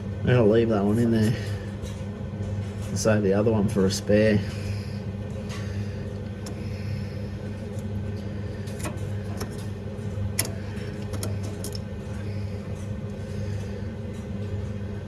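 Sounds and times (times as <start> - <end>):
steady low hum: 0.0 - 15.0
light clicks and taps: 5.2 - 13.7.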